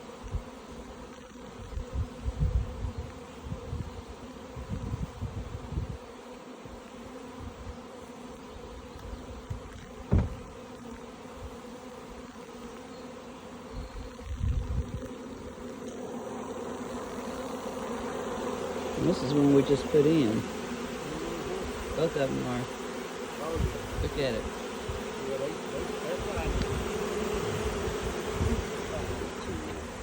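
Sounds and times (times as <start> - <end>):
bees buzzing: 0.0 - 30.0
sharp knock: 10.1 - 10.4.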